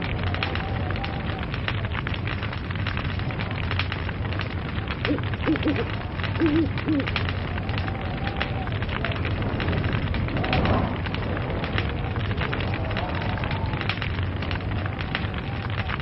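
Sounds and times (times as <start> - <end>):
log fire crackling: 0.0 - 16.0
hoot-like calls: 5.1 - 7.1.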